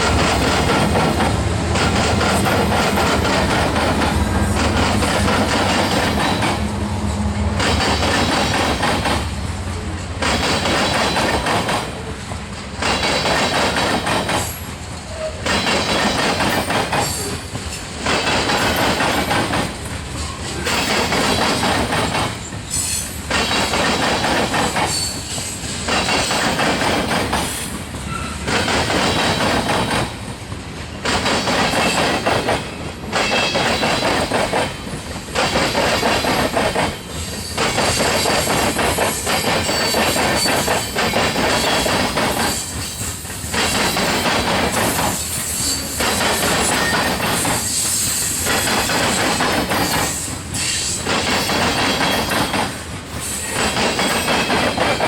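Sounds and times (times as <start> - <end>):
train wheels clattering over crossing: 0.0 - 55.0
faint high wheel squeal: 17.0 - 17.9, 24.9 - 25.7, 27.5 - 28.5, 37.0 - 44.1, 44.8 - 49.2, 49.8 - 52.6.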